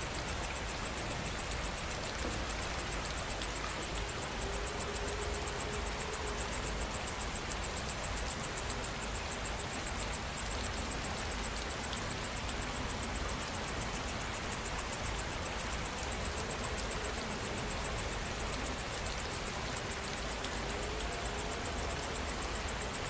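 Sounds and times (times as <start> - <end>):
insect pulsing trill: 0.0 - 9.3
rain falling: 0.0 - 23.0.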